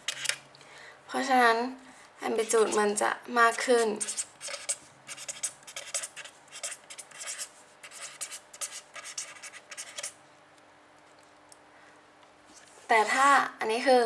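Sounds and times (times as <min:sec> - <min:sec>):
pen scratching on paper: 0:03.5 - 0:10.1.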